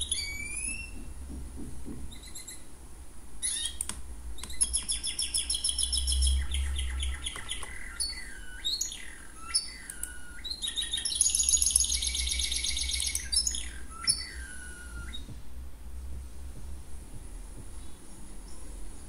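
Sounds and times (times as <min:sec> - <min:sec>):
bird chirping and trilling: 0:00.0 - 0:01.1, 0:02.1 - 0:02.7, 0:03.4 - 0:03.8, 0:04.4 - 0:15.3
steady low hum: 0:00.0 - 0:19.0.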